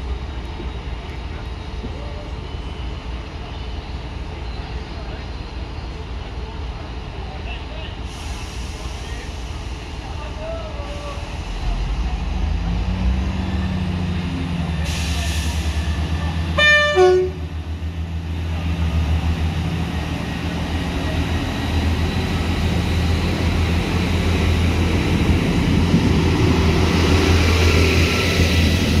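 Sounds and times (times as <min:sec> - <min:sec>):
diesel train engine drone: 0:00.0 - 0:29.0
two-tone train horn: 0:16.6 - 0:17.5.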